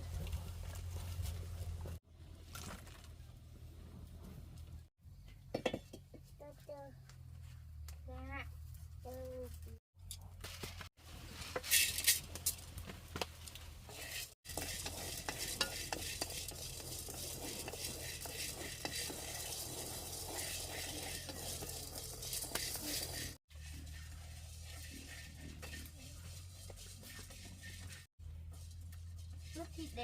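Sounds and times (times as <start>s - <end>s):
utensil scraping and clinking: 11.4s - 12.7s, 13.9s - 30.0s
food sizzling in a pan: 13.9s - 28.1s.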